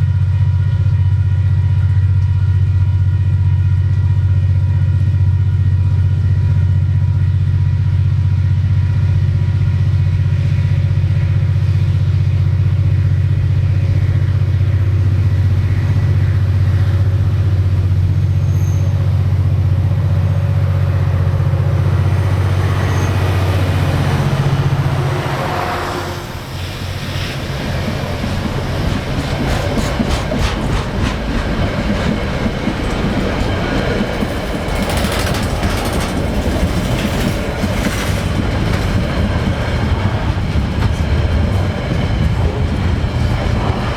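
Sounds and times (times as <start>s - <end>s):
diesel locomotive engine drone: 0.0s - 43.9s
train wheels clickety-clack: 26.5s - 43.9s.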